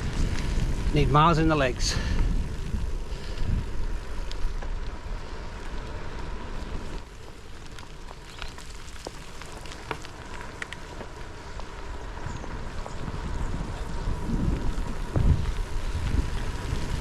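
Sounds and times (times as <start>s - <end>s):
low wind rumble: 0.0s - 17.0s
rain spattering on microphone: 12.7s - 17.0s.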